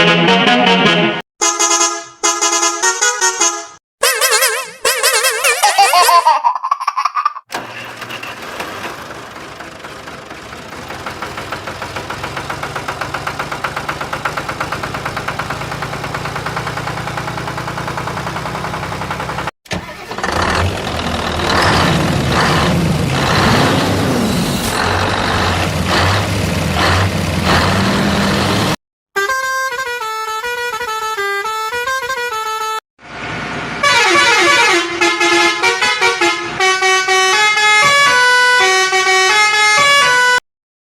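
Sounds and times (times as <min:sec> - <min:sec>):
vehicle horn blasts: 0:01.4 - 0:05.5, 0:29.2 - 0:32.8, 0:33.8 - 0:40.4
engine chugging: 0:07.6 - 0:28.8.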